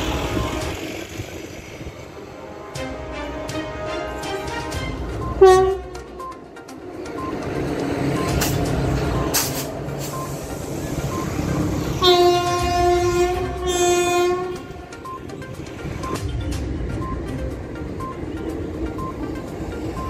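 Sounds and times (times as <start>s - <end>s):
train rumbling by: 0.0s - 20.0s
locomotive horn blast: 2.2s - 6.2s, 11.6s - 15.1s.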